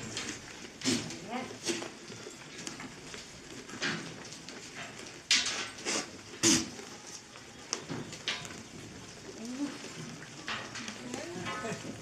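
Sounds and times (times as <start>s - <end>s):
knocks and rustles: 0.0s - 6.8s.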